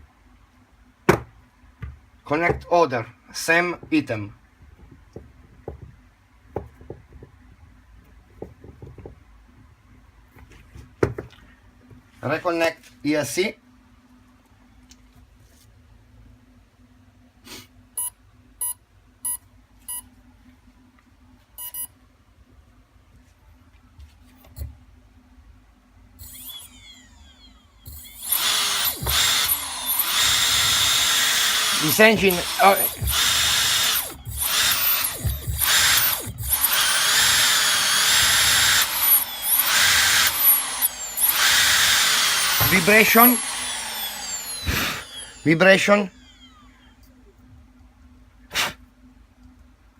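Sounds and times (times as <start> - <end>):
electric motor whine: 26.2 - 47.0.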